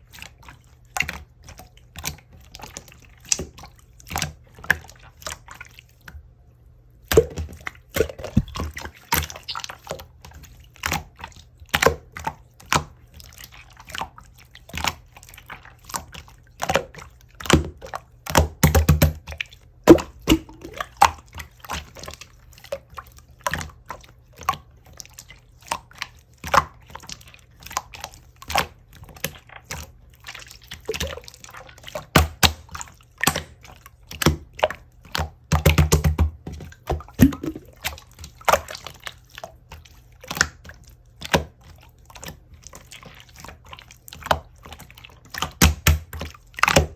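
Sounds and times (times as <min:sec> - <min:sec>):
slime squeezed by hand: 0:07.1 - 0:10.1, 0:19.9 - 0:21.2, 0:36.9 - 0:38.9.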